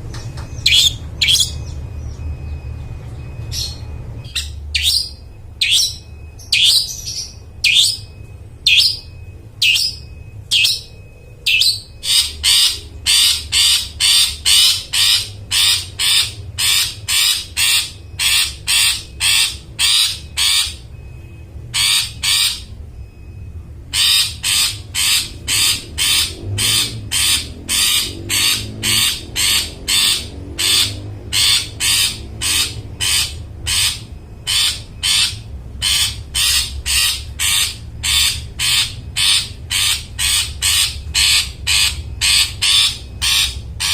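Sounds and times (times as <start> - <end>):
bird harsh repeated calls: 0.2 - 43.9.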